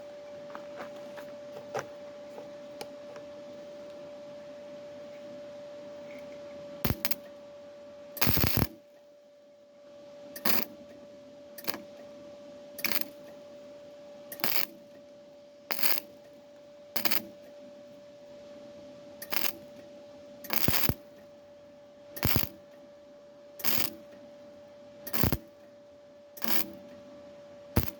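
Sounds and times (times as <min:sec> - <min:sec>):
faint hum: 0:00.0 - 0:27.9
welding crackle: 0:06.9 - 0:07.2, 0:08.2 - 0:08.8, 0:10.4 - 0:10.7, 0:12.8 - 0:13.2, 0:14.4 - 0:14.8, 0:15.7 - 0:16.1, 0:17.0 - 0:17.3, 0:19.3 - 0:19.6, 0:20.5 - 0:21.1, 0:22.2 - 0:22.6, 0:23.6 - 0:24.0, 0:25.1 - 0:25.5, 0:26.4 - 0:26.8.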